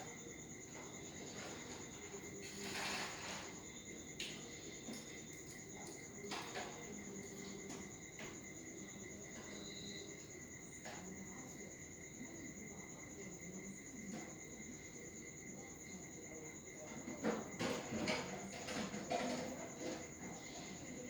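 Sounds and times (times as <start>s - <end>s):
high-pitched cricket-like trill: 0.0s - 13.2s.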